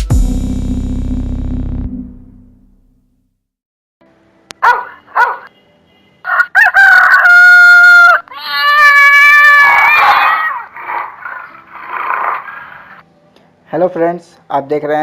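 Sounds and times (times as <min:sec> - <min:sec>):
rooster clucking: 0:04.6 - 0:05.5, 0:06.3 - 0:13.0
rooster crowing: 0:06.2 - 0:11.6.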